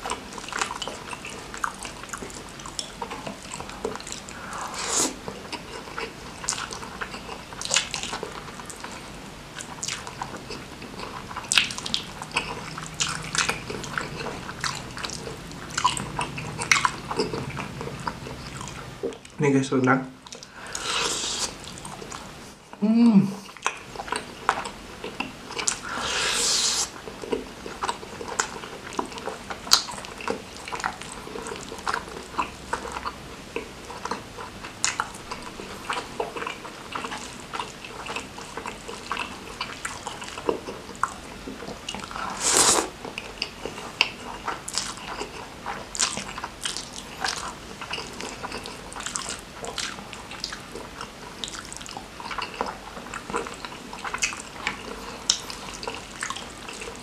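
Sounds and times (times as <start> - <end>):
chewing and mouth sounds: 0.0 - 19.4, 20.1 - 22.3, 23.4 - 57.0
breathy hisses: 4.3 - 5.2, 20.5 - 21.6, 25.8 - 26.9.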